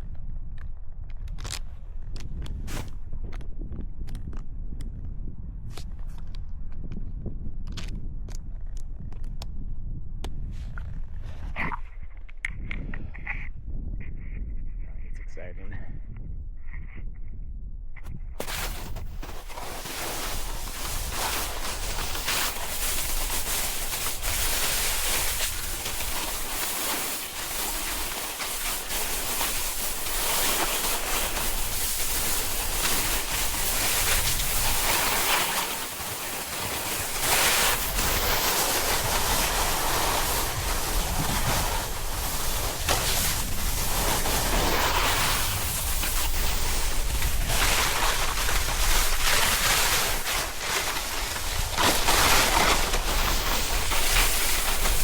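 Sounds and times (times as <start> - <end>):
wind rumbling on microphone: 0.0 - 55.0
snowboard scraping on snow: 18.4 - 55.0.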